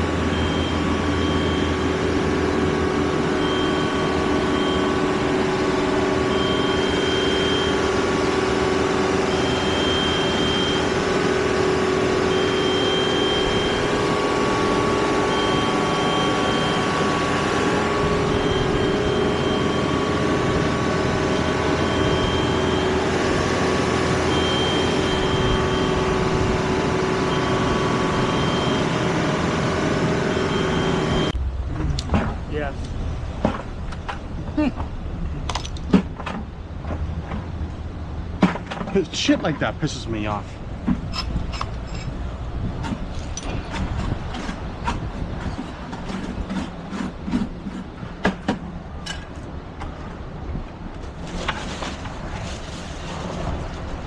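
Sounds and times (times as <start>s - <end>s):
vehicle engine running: 0.0s - 38.4s
high warning beep: 0.1s - 31.4s.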